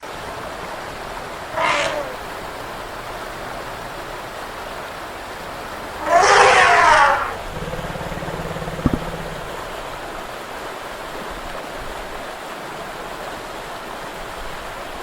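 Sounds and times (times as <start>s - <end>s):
animal calls: 1.5s - 2.4s, 5.9s - 9.7s
steady rushing noise: 5.1s - 10.5s.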